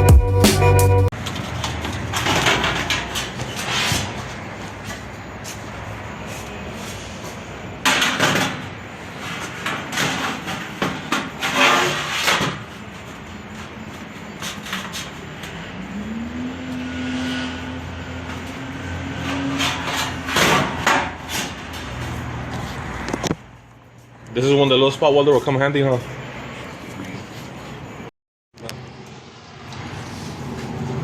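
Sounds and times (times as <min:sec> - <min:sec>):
sheet-metal duct clanking: 0:19.2 - 0:22.0.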